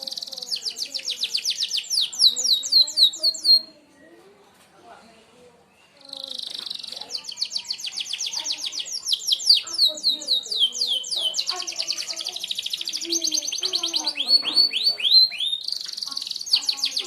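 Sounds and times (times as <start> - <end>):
canary singing a fast trill: 0.0 - 3.8, 5.8 - 17.0.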